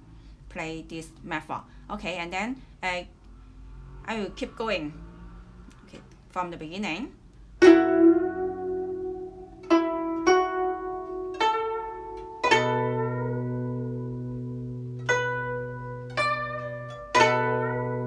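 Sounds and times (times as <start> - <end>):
plucked zither notes: 7.6 - 18.0.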